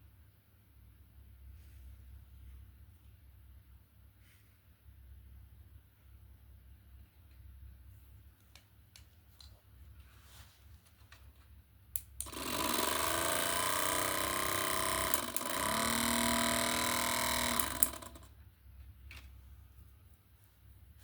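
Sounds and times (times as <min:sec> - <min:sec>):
electric motor whirring: 0:12.2 - 0:18.3.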